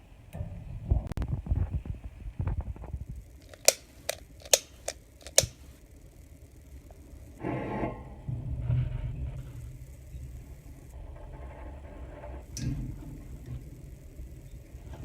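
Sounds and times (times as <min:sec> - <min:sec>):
sharp metallic clicks: 0:03.3 - 0:07.4.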